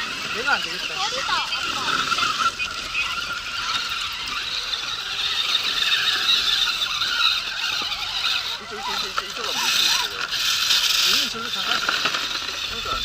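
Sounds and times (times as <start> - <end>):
small electric motors whining: 0.0 - 13.0.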